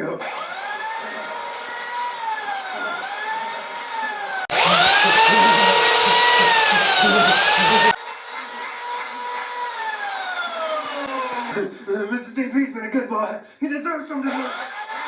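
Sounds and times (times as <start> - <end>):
chainsaw cutting: 4.4 - 8.0.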